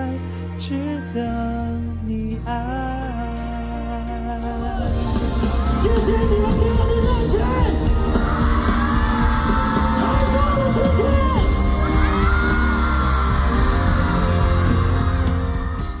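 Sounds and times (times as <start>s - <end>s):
band music playing: 0.0s - 16.0s
audience yelling and whooping: 4.4s - 16.0s.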